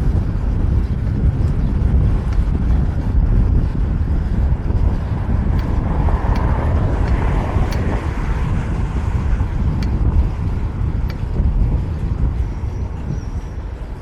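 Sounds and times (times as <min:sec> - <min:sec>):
street traffic noise: 0:00.0 - 0:14.0
wind rumbling on microphone: 0:00.0 - 0:14.0
faint sharp ticks: 0:05.5 - 0:07.9.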